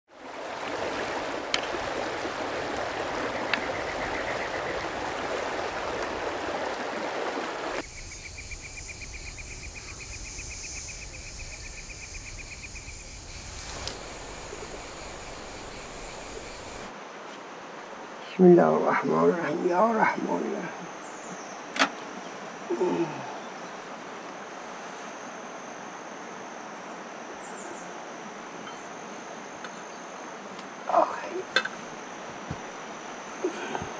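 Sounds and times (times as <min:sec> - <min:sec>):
running water rushing: 0:00.1 - 0:07.9, 0:13.2 - 0:17.0, 0:30.2 - 0:33.9.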